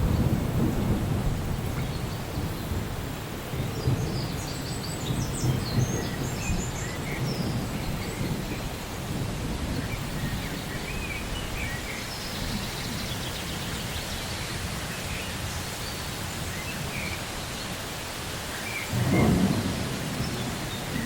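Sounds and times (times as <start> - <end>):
small birds chirping: 9.8 - 21.0.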